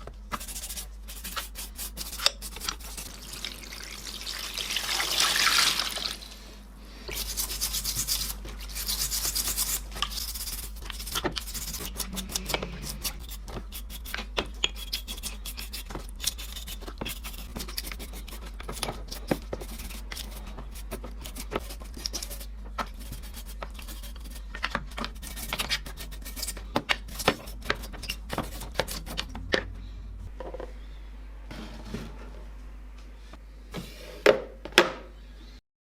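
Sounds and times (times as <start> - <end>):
brush scrubbing metal: 0.4 - 3.6, 7.1 - 29.4.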